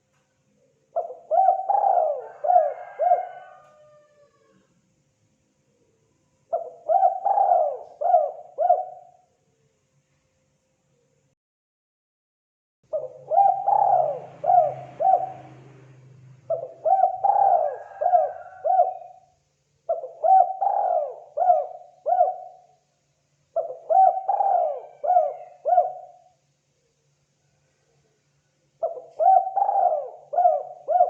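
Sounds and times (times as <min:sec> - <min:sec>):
dove cooing: 0:00.9 - 0:04.7, 0:06.5 - 0:09.2, 0:12.9 - 0:19.3, 0:19.9 - 0:22.8, 0:23.6 - 0:26.4, 0:28.8 - 0:31.0.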